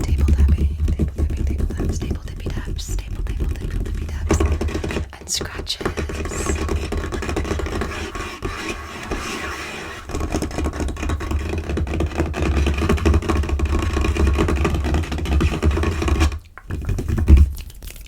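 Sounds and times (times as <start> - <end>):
deep thuds: 0.0 - 7.9
fingers tapping on tabletop: 0.0 - 17.5.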